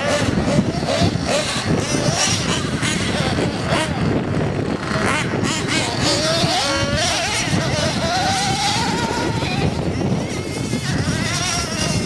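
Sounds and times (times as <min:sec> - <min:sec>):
rc car engines whining: 0:00.0 - 0:12.0
steady rush of noise: 0:00.0 - 0:12.0.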